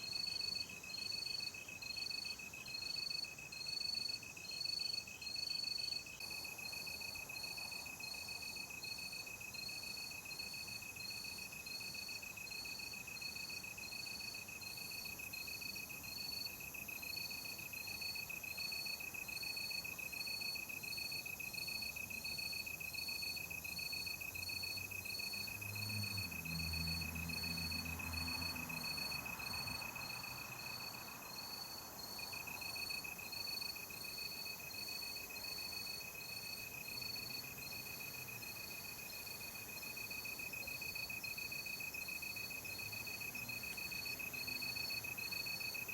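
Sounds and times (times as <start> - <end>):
crickets chirping: 0.0 - 45.9.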